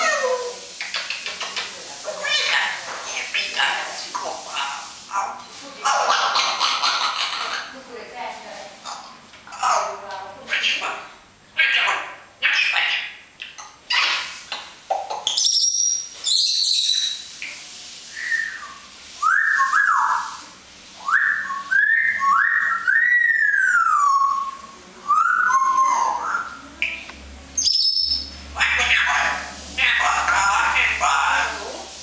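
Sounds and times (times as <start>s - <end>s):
parrot whistling: 15.2s - 17.4s, 18.1s - 20.4s, 21.0s - 27.0s, 27.6s - 31.6s.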